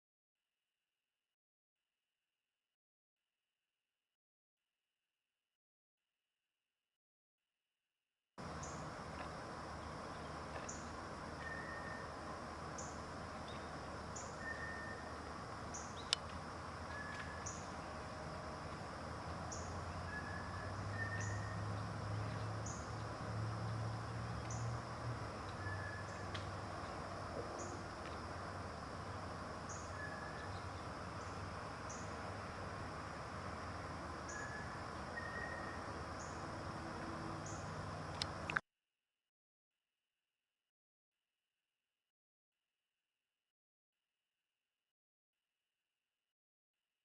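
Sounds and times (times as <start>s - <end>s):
steady background hiss: 8.4s - 38.6s
high chirp calls: 10.1s - 16.2s, 19.5s - 21.6s, 34.3s - 36.4s.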